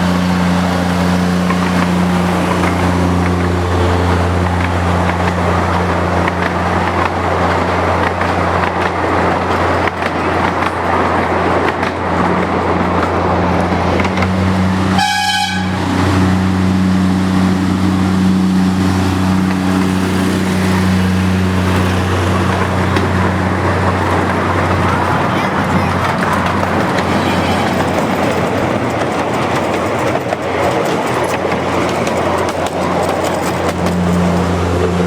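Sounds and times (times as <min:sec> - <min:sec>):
diesel locomotive engine running: 0:00.0 - 0:35.0
short horn toot: 0:14.9 - 0:15.9.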